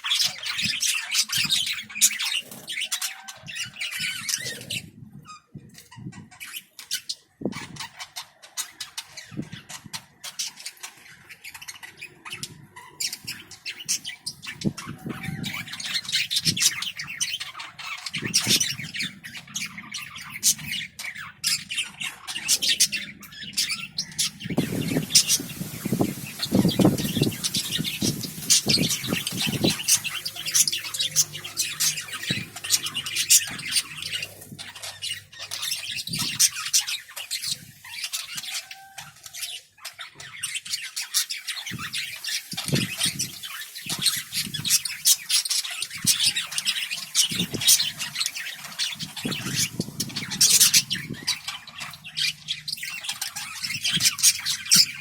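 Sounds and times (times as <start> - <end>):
parrots chattering and squawking: 0.0 - 55.0.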